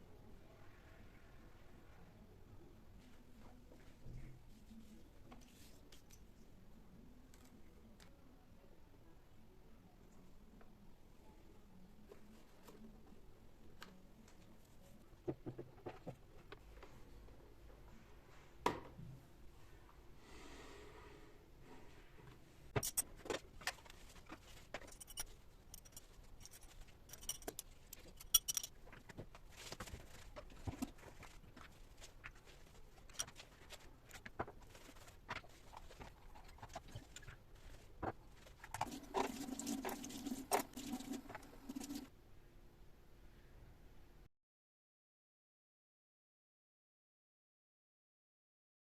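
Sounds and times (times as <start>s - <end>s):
small objects clicking and rustling: 22.8s - 42.0s.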